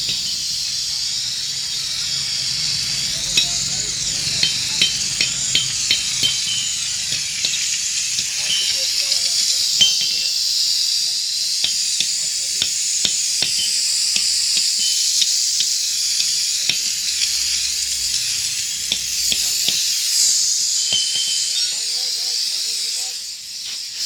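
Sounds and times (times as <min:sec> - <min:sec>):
cleaning spray hissing: 0:00.0 - 0:24.0.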